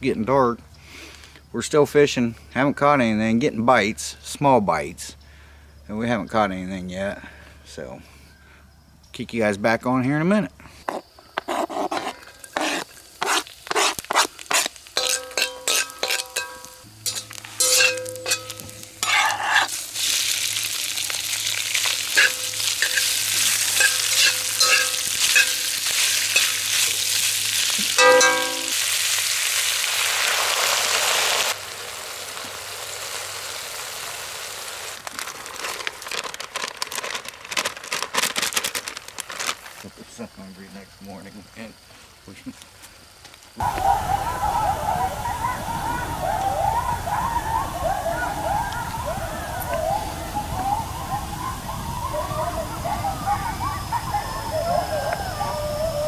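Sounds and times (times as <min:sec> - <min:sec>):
knife scraping cutting board: 0:11.4 - 0:16.3, 0:19.0 - 0:19.7
food sizzling in a wok: 0:12.0 - 0:36.4.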